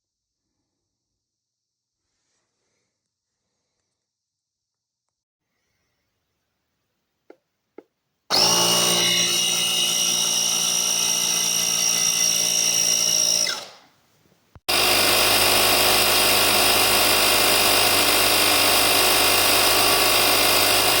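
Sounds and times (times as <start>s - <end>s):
air compressor whining: 8.3s - 13.9s, 14.7s - 21.0s.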